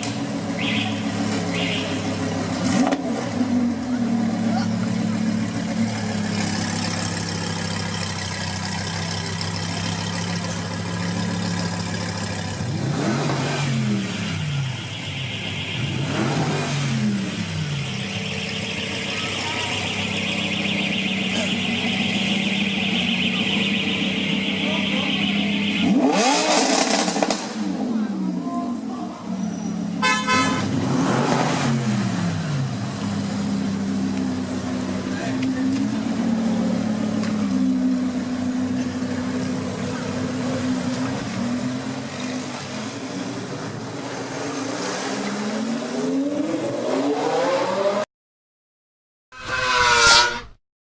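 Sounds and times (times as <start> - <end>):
sports car engine idling and revving: 0.0 - 48.0
car horn toot: 0.6 - 2.2, 17.6 - 26.4, 30.0 - 30.8.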